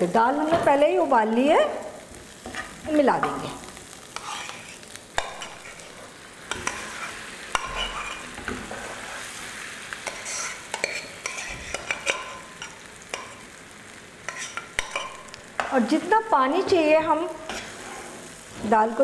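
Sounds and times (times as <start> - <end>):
dal sizzling in hot ghee: 0.0 - 19.0
spoon clinking against pan: 10.7 - 13.4.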